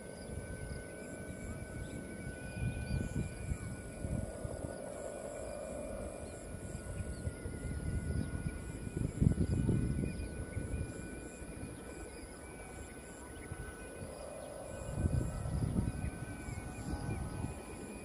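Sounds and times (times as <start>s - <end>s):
faint steady high tones: 0.0s - 18.0s
strong wind buffeting microphone: 1.5s - 4.8s, 6.5s - 11.7s, 13.5s - 18.0s.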